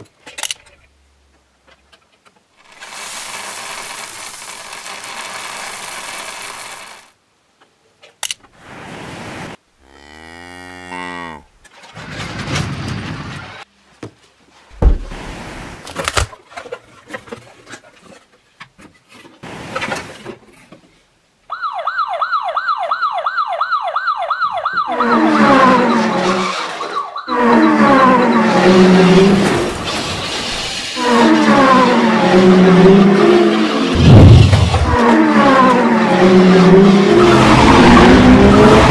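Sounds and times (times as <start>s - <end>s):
sliding vehicle tones: 11.6s - 13.7s, 24.9s - 38.9s
siren wailing up and down: 21.5s - 29.7s, 31.0s - 38.9s.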